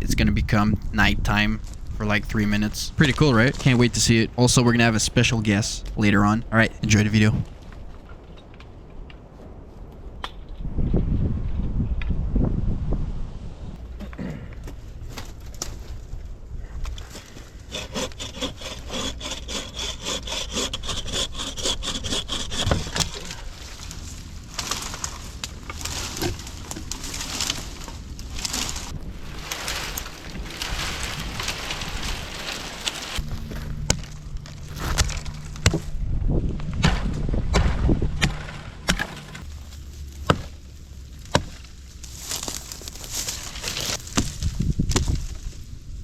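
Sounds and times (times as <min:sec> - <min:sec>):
hand saw cutting wood: 0:17.6 - 0:23.6
axe chopping wood: 0:34.7 - 0:35.9, 0:36.8 - 0:39.4, 0:40.2 - 0:40.6, 0:41.2 - 0:41.6, 0:44.1 - 0:45.2.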